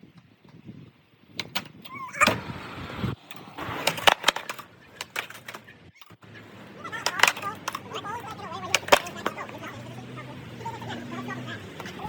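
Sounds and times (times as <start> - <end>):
skateboard wheels on wet pavement: 2.1 - 12.0
skateboard clacks and knocks: 3.2 - 12.0.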